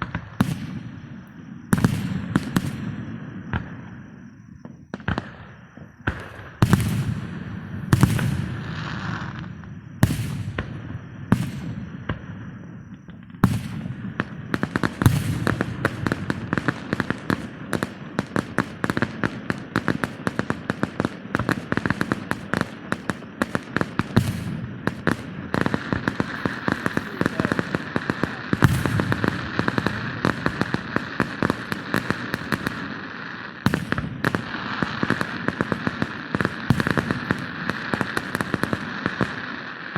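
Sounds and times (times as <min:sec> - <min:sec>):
firework crackle of rapid pops: 0:00.0 - 0:39.9
sharp firework bangs: 0:04.6 - 0:18.5, 0:21.4 - 0:33.0.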